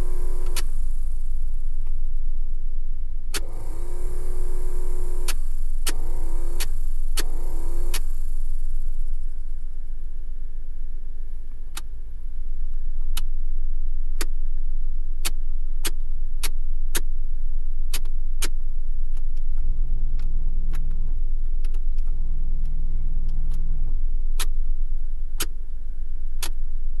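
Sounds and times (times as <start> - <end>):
sharp clicks: 0.0 - 1.0, 3.4 - 8.5
truck engine running: 0.0 - 1.4, 3.4 - 9.5
steady hums: 0.0 - 1.9, 3.4 - 9.9.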